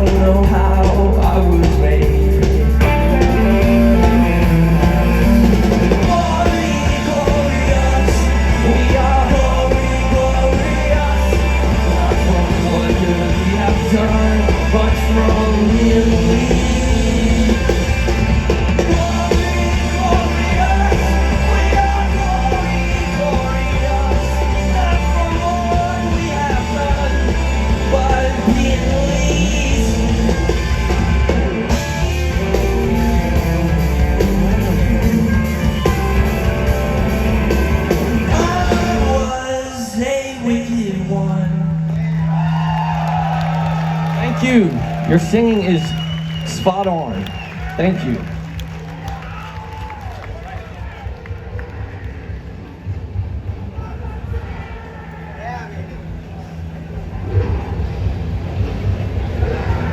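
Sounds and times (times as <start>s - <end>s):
person singing: 0.0s - 18.1s, 38.1s - 41.6s
rock band playing live: 0.0s - 50.0s.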